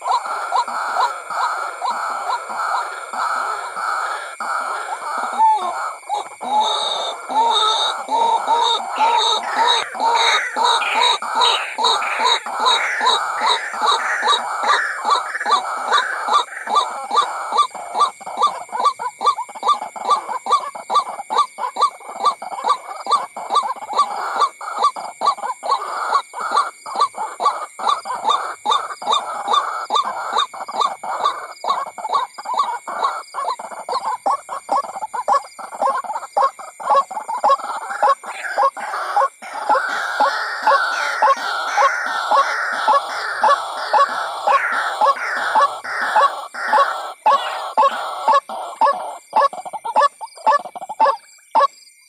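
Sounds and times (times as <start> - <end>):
bird calling harsh repeated notes: 0.0 - 18.6, 37.1 - 50.3.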